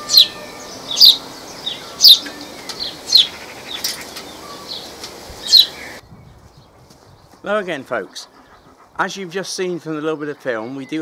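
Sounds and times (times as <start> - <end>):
birds chirping: 0.0 - 11.0
steady hiss: 0.6 - 6.0.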